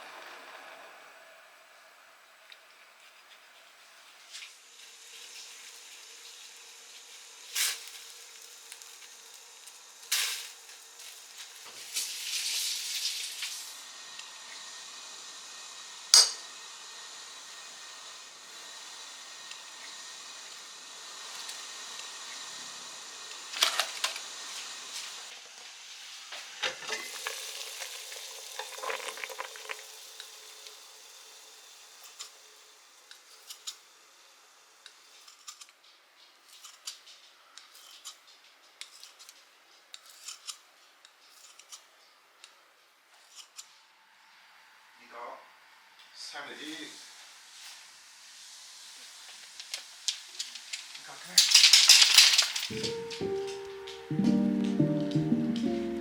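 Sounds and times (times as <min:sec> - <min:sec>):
hiss: 0:03.8 - 0:35.6, 0:46.2 - 0:52.7
utensils and dishes clinking: 0:16.1 - 0:16.5, 0:51.3 - 0:54.0.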